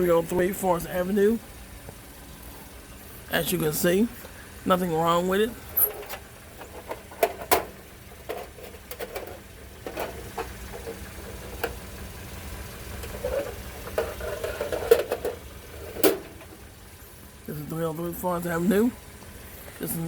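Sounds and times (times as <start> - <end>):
handling clicks and knocks: 5.8 - 11.8, 13.0 - 16.6.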